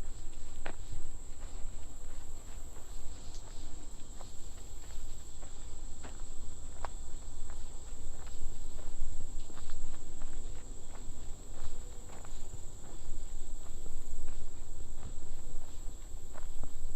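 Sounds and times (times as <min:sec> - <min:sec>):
footsteps on trail: 0:00.0 - 0:16.9
insects trilling: 0:00.0 - 0:16.9.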